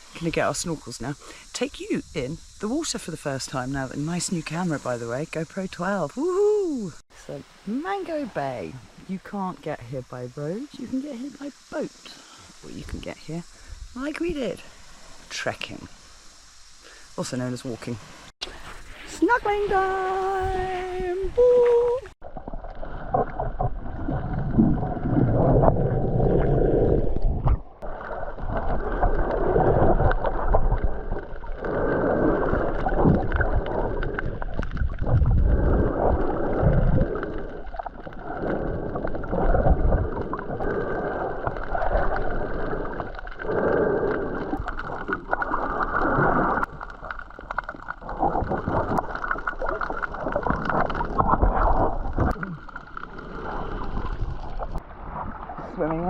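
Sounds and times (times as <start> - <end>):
muffled underwater sloshing: 17.8 - 56.0.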